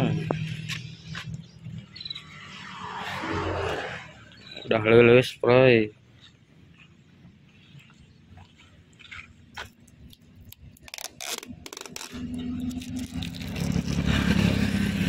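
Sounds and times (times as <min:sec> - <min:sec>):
vehicle engine low hum: 0:00.0 - 0:04.7, 0:05.9 - 0:15.0
strips scraping and crackling: 0:09.6 - 0:14.5.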